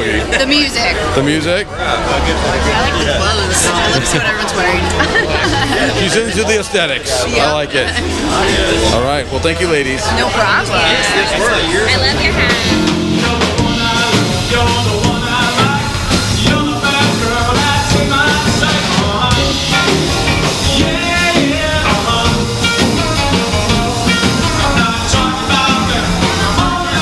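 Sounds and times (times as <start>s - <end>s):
live rockabilly band playing: 2.0s - 27.0s
person singing: 12.5s - 27.0s.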